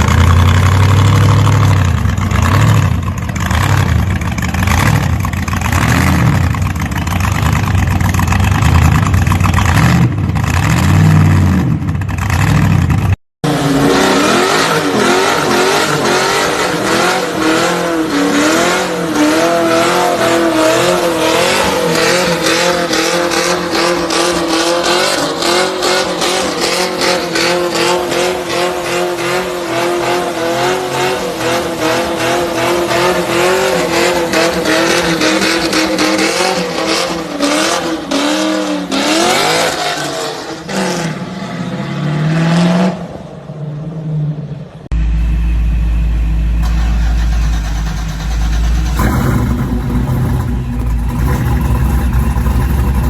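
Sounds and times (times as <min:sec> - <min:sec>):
engine deep low rumble: 0:00.0 - 0:13.2, 0:44.9 - 0:53.0
car engine at high revs: 0:00.0 - 0:53.0.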